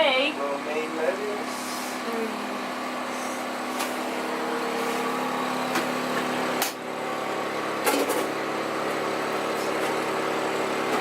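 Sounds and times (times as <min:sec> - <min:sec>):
machinery humming: 0:00.2 - 0:11.0.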